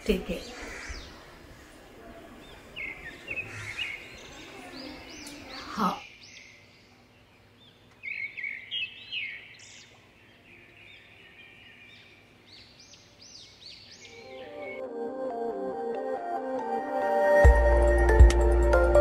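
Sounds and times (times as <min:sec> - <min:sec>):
small birds chirping: 0:00.1 - 0:14.9.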